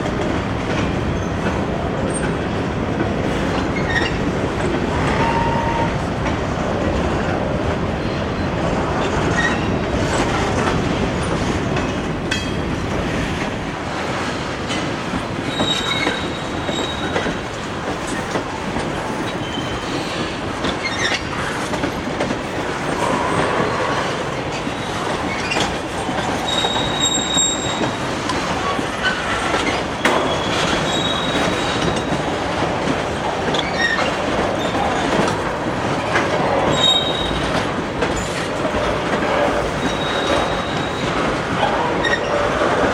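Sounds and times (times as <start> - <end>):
freight train rumbling past: 0.0 - 42.9
train wheel squeals: 3.5 - 4.3, 5.0 - 5.9, 9.3 - 9.7, 15.4 - 17.5, 19.0 - 21.9, 24.8 - 32.4, 33.5 - 35.3, 36.4 - 38.5, 39.3 - 42.9.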